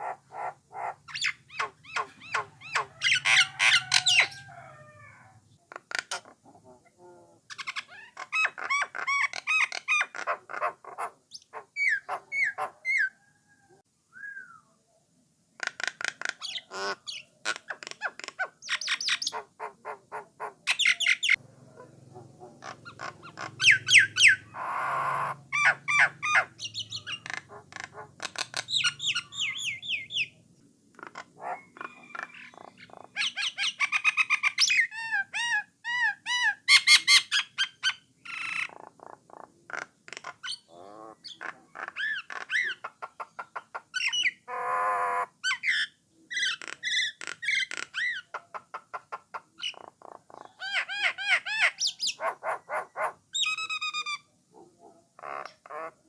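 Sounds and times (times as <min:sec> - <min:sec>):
bird rasping squawk: 0:00.0 - 0:05.0, 0:22.5 - 0:30.1, 0:31.0 - 0:38.7.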